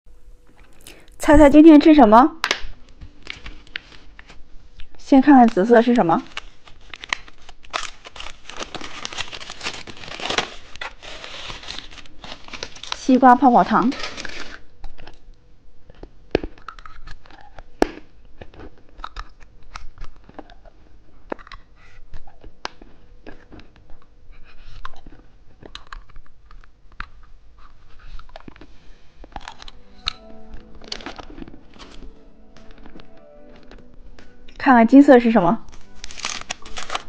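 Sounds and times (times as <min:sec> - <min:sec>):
chewing gum crunches: 0:00.5 - 0:01.2, 0:15.9 - 0:29.8.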